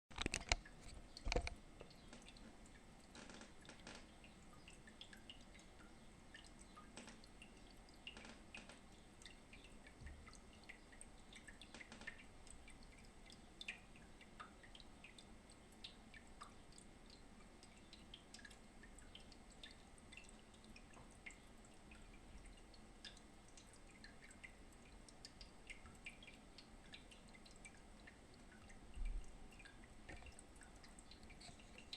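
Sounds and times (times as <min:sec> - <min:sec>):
low steady hiss: 0:00.1 - 0:31.9
water drips and ticks: 0:00.1 - 0:31.9.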